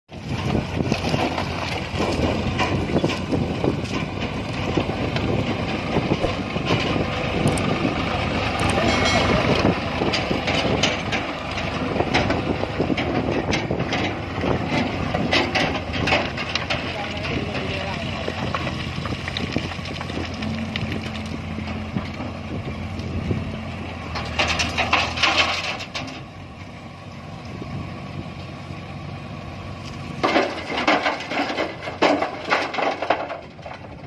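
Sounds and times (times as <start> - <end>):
diesel machinery running: 0.1 - 34.0
knocks and clatter: 0.2 - 7.9, 8.5 - 22.8, 24.0 - 26.3, 30.1 - 34.0.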